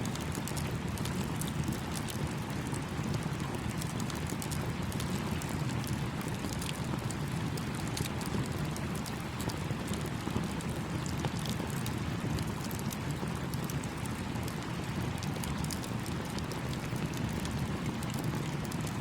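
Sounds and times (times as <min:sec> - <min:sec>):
campfire crackling and popping: 0:00.1 - 0:19.0.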